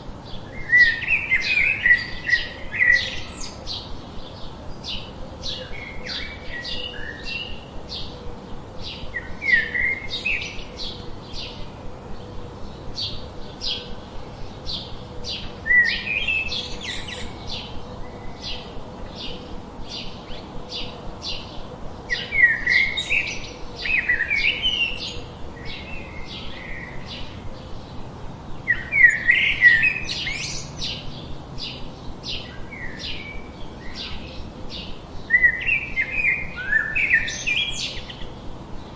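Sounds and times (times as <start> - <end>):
small birds chirping: 0.0 - 38.9
bird twittering phrases: 12.7 - 38.3.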